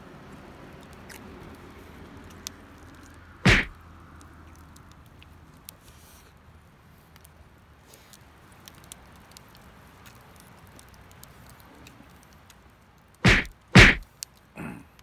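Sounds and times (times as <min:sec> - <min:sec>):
wood fire crackling: 0:00.2 - 0:15.0
loud sharp cracks: 0:03.4 - 0:03.8, 0:13.2 - 0:14.1.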